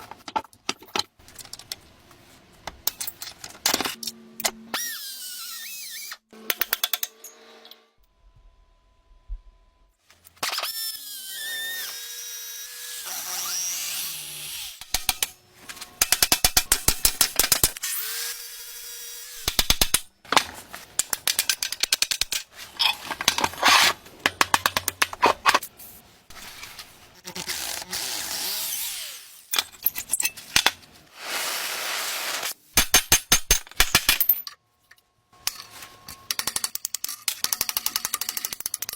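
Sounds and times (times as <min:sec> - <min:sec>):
power tools spinning: 0:21.0 - 0:25.7.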